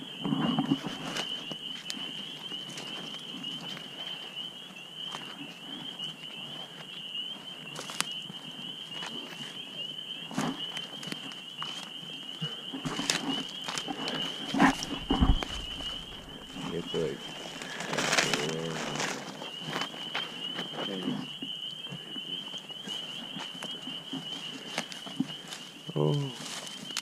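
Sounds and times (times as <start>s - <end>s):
twigs crackling: 7.6s - 9.7s, 10.3s - 27.0s
high-pitched insect trill: 10.6s - 27.0s
footsteps crunching on forest floor: 12.8s - 21.5s.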